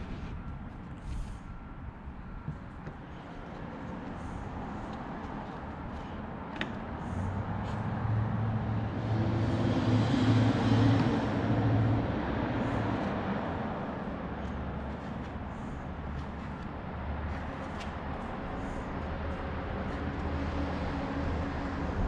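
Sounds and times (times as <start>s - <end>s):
vehicle engine passing by: 7.2s - 13.8s.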